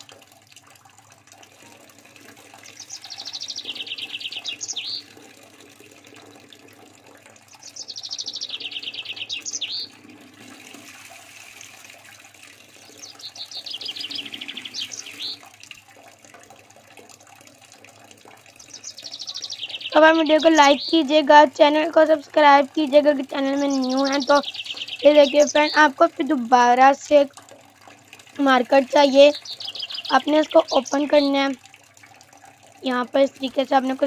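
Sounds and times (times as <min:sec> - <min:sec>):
songbird trilling: 0:02.6 - 0:05.2, 0:07.5 - 0:09.9, 0:12.9 - 0:15.4, 0:18.6 - 0:21.1, 0:23.3 - 0:26.0, 0:29.0 - 0:31.5.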